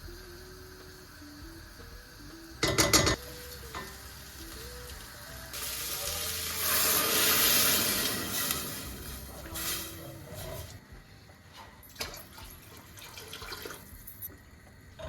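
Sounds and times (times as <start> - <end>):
soft background music: 0.0 - 15.0
hissing rush of noise: 3.2 - 10.9.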